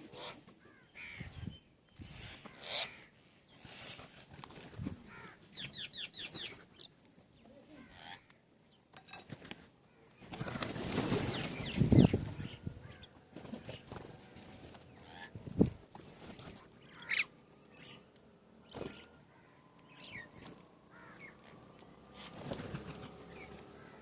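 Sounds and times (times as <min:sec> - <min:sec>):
wing flapping and rustling: 0:02.0 - 0:07.6, 0:08.9 - 0:19.5, 0:20.1 - 0:24.0
birds chirping: 0:05.0 - 0:08.9, 0:09.9 - 0:24.0.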